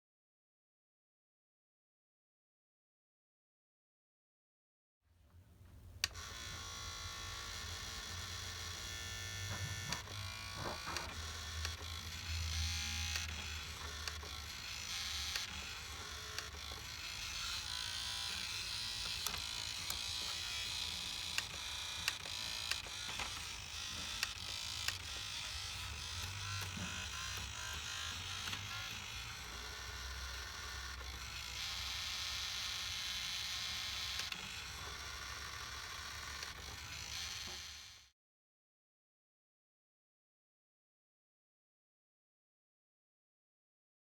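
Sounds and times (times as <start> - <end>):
small electric motor buzzing: 6.0 - 38.1.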